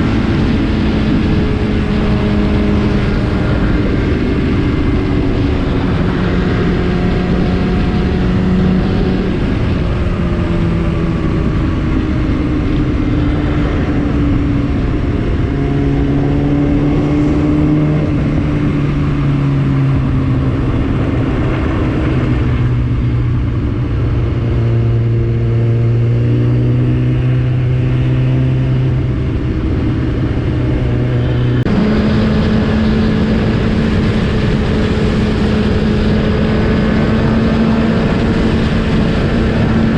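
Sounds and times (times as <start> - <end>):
constant rushing noise: 0.0 - 39.9
motorcycle engine running: 0.0 - 39.9.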